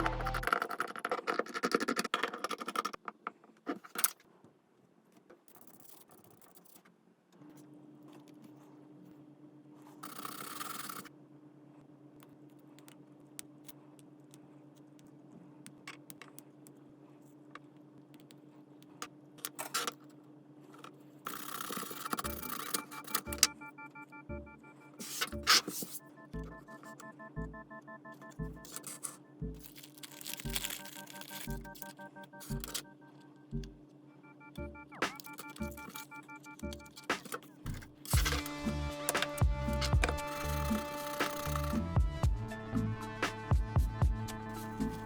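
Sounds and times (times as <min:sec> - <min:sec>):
steady low hum: 0:22.1 - 0:45.0.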